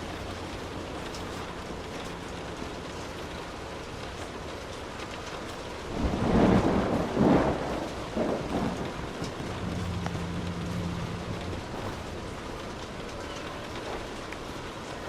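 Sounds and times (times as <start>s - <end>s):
rain hissing: 0.0s - 15.0s
thunder rumbling: 5.7s - 15.0s.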